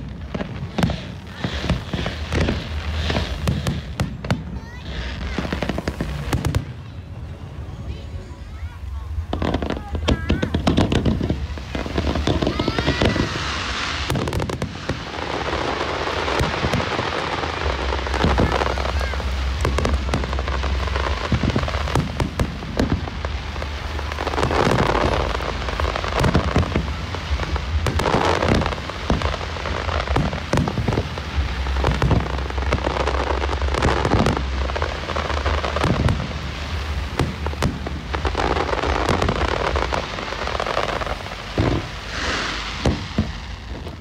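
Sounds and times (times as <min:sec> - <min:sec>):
firework bangs: 0:00.0 - 0:44.0
fireworks crackling and popping: 0:00.0 - 0:44.0.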